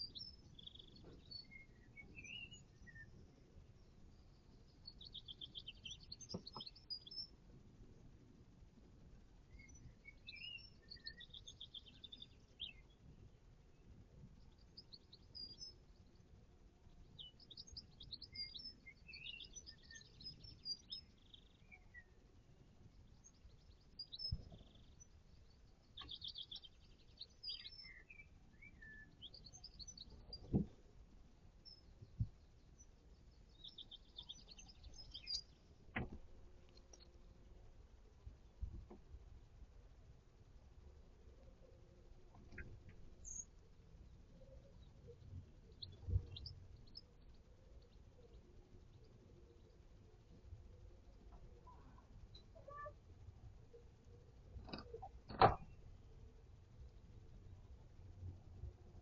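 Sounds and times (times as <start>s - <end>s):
songbirds chirping and singing: 0.0s - 7.4s, 9.4s - 13.1s, 13.8s - 30.8s, 31.6s - 37.2s, 42.3s - 53.0s.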